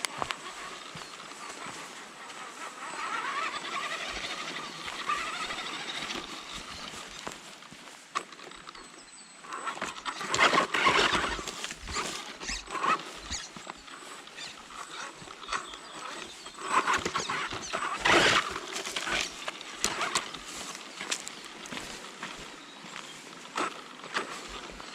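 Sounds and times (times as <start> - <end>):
toy car clattering over rocks: 2.9 - 7.5, 9.5 - 22.4.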